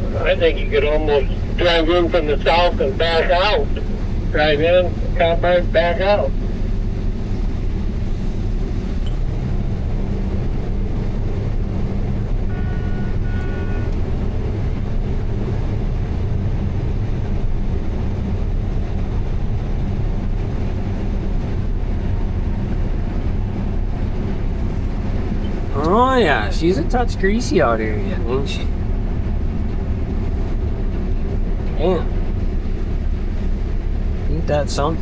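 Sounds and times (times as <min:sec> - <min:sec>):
combine harvester engine drone: 0:00.0 - 0:35.0.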